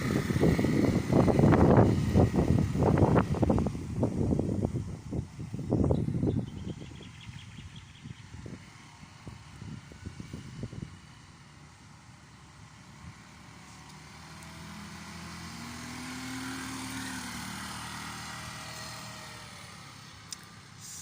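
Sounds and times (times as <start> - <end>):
motorcycle engine passing by: 0.0 - 4.5, 13.0 - 20.2.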